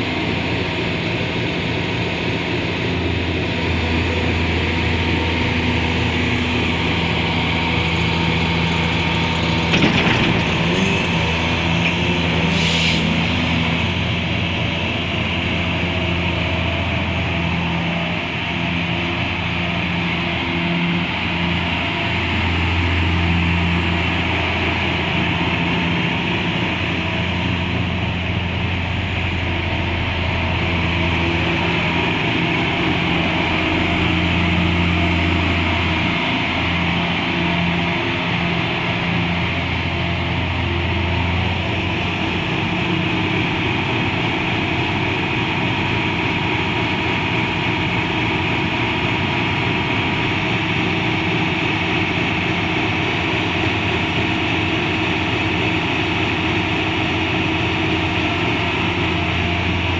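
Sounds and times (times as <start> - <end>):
excavator diesel engine running: 0.0 - 59.9
short hiss: 12.5 - 13.2.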